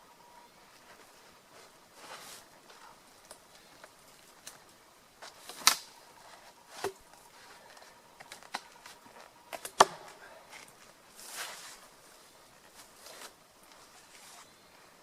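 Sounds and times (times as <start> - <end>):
brushing rustle: 0.7 - 4.4, 10.4 - 14.9
wooden logs knocking: 9.5 - 10.2.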